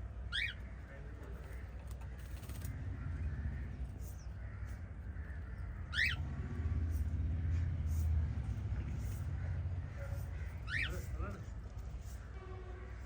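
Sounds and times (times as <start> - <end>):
bird warbling chirp: 5.9 - 6.2.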